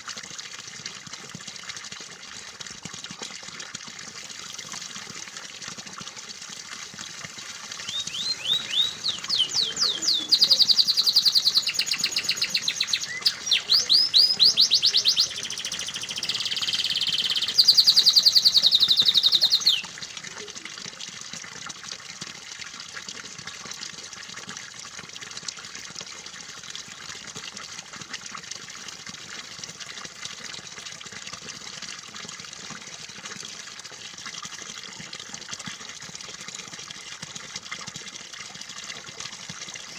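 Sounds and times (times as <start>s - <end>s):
running water: 0.0s - 39.9s
canary singing trills: 7.8s - 19.9s.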